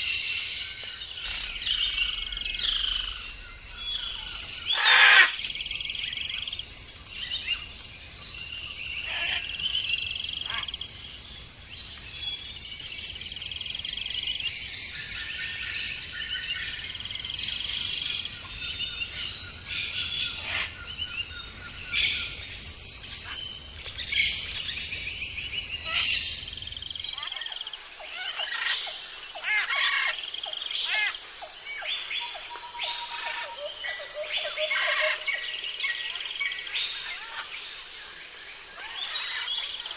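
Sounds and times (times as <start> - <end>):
birds chirping and whistling: 0.0 - 10.7, 16.4 - 27.6.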